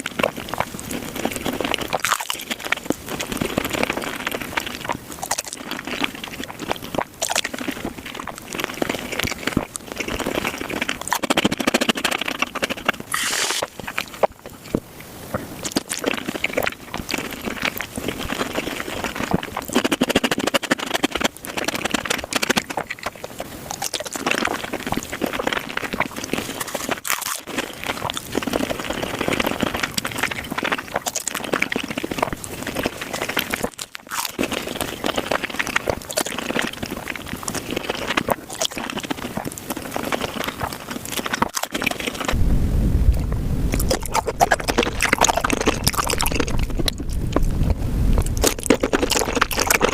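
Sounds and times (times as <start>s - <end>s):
chewing shrimp: 0.0s - 42.4s, 43.7s - 49.9s
low rumble: 42.3s - 48.5s.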